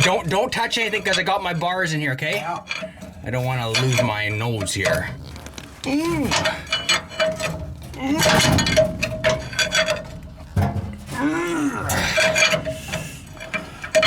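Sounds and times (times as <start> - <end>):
pry bars scraping on metal: 0.0 - 14.0.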